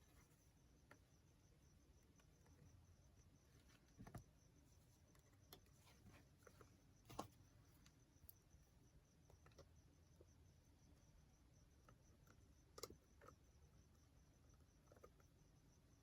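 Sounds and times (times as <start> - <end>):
faint taps and handling noises: 3.5 - 8.4.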